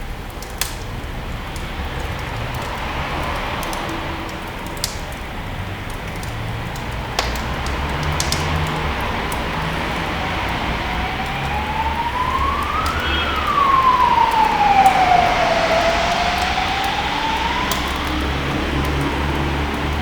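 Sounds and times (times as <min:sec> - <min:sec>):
siren wailing: 0:07.2 - 0:20.0.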